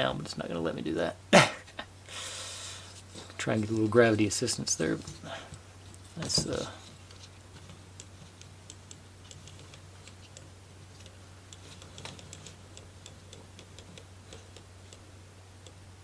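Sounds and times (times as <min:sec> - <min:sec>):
wooden parts clicking and tapping: 0:03.0 - 0:15.0.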